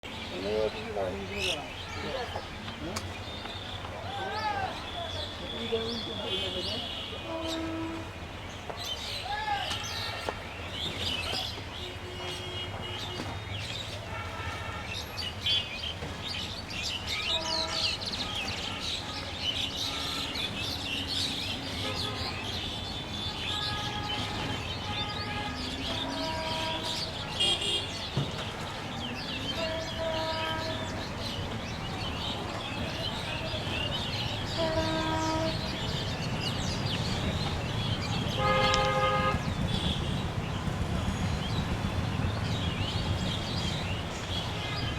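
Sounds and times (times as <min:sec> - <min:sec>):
small birds chirping: 0:14.8 - 0:44.9.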